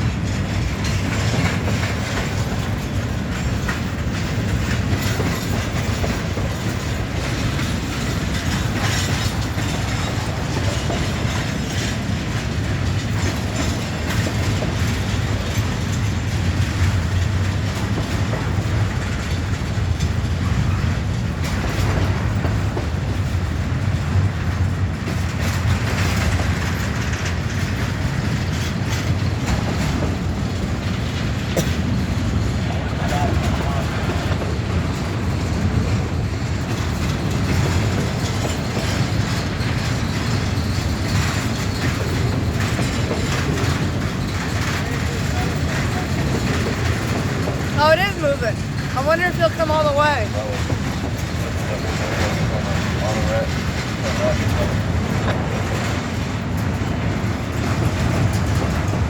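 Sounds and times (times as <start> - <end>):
low rumble of freight train: 0.0 - 59.0
train wheels clicking over rail joints: 0.0 - 59.0.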